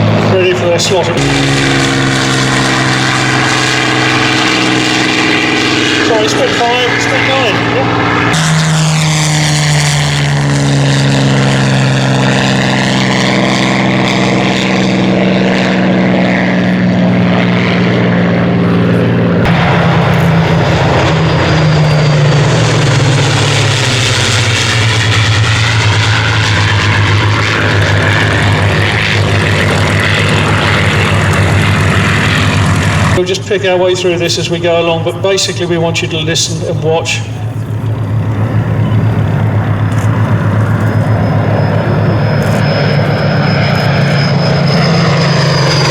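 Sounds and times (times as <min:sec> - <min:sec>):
piston engine aircraft flying past: 0:00.0 - 0:45.9.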